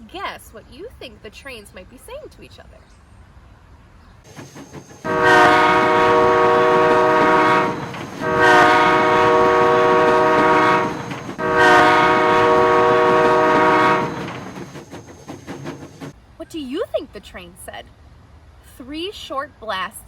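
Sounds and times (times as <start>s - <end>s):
train horn blasts: 5.0s - 14.4s.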